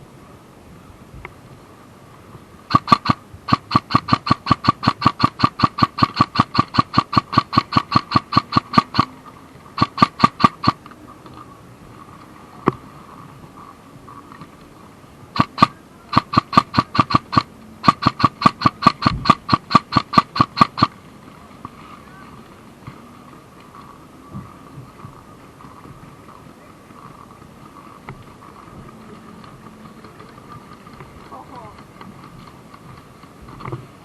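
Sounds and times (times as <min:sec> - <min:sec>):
airsoft gun firing bursts: 0:02.7 - 0:09.1, 0:09.8 - 0:10.8, 0:15.4 - 0:20.9.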